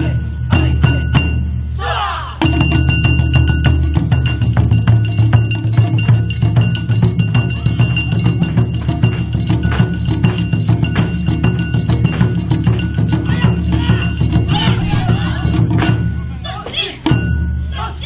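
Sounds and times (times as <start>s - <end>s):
music with heavy low beat: 2.4s - 16.4s
sharp clicking percussion: 2.4s - 17.9s
held ringing tones: 2.4s - 18.0s.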